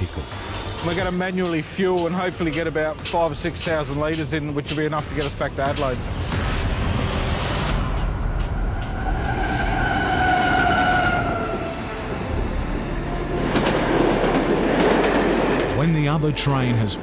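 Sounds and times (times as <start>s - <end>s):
freight train wheels rumbling: 0.0s - 6.2s, 7.7s - 17.0s
train horn: 8.8s - 15.0s.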